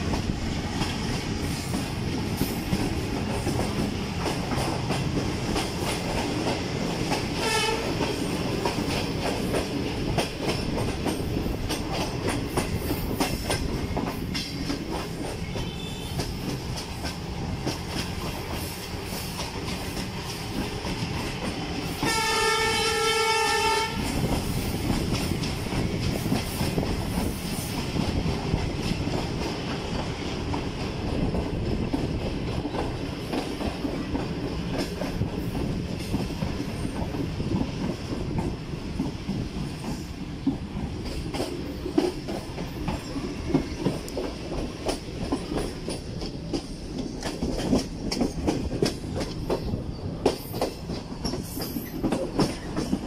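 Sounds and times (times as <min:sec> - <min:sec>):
train wheels rumbling on rails: 0:00.0 - 0:53.0
wheels clicking over rail joints: 0:23.2 - 0:53.0.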